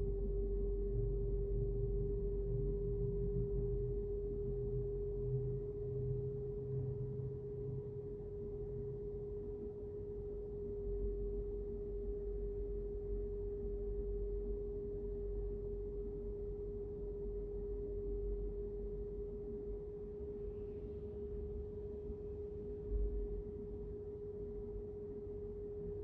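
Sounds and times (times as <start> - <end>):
steady pure tone hum: 0.0 - 26.0.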